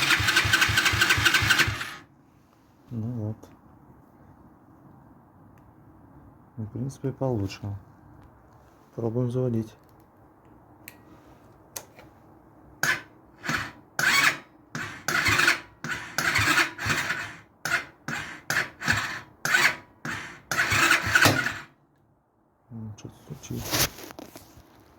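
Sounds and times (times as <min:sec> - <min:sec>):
electric starter cranking engine: 0:00.0 - 0:02.1, 0:12.8 - 0:21.8.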